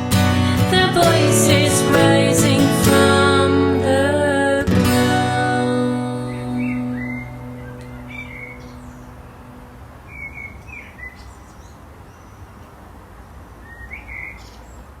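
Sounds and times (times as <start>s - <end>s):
acoustic guitar chord: 0.0s - 10.0s
steady outdoor hiss: 0.0s - 15.0s
small birds chirping: 6.2s - 15.0s.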